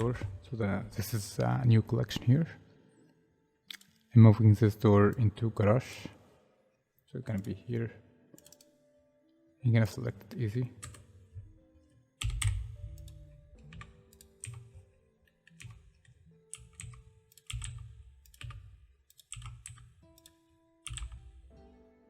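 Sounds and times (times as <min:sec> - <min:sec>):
quiet background music: 0:00.0 - 0:22.0
keyboard keystrokes: 0:08.4 - 0:08.7, 0:12.2 - 0:21.3.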